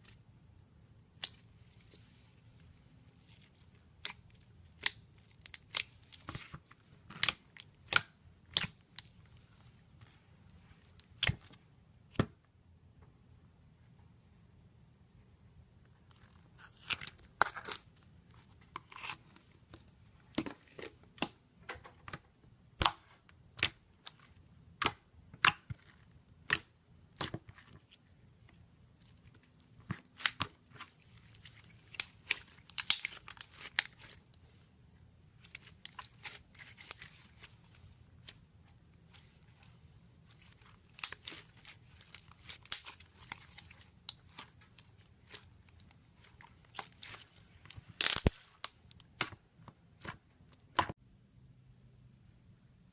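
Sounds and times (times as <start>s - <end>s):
slime popping and crackling: 29.8s - 34.2s, 35.4s - 37.6s, 39.0s - 45.5s, 46.2s - 49.4s.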